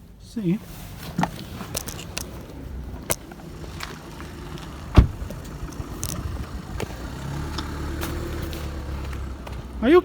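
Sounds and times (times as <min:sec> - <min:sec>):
car engine hum from inside: 0:00.7 - 0:10.0
loud thump: 0:04.9 - 0:05.3.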